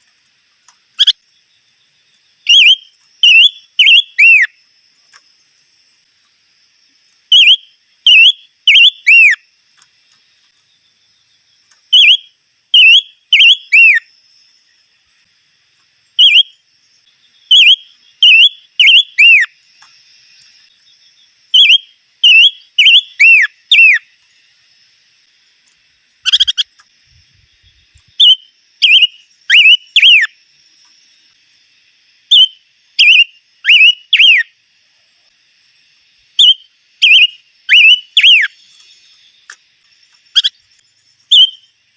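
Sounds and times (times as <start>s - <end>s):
bird whistled song: 0.9s - 1.2s, 2.4s - 4.6s, 7.3s - 9.4s, 11.9s - 14.1s, 16.1s - 19.6s, 21.5s - 24.1s, 26.2s - 26.8s, 27.7s - 30.4s, 32.3s - 34.5s, 36.4s - 39.3s, 40.3s - 41.8s
sharp bird call: 2.5s - 4.5s, 12.0s - 14.1s, 28.2s - 30.3s, 32.3s - 34.5s, 36.4s - 38.6s.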